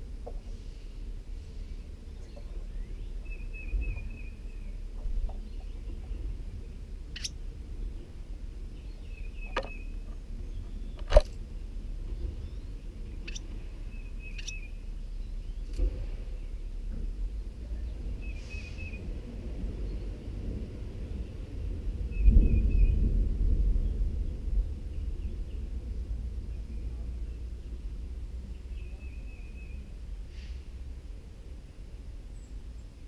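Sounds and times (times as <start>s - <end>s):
steady low rumble: 0.0s - 33.0s
faint warbled bird chirps: 1.6s - 4.8s, 7.1s - 8.0s, 12.2s - 16.6s.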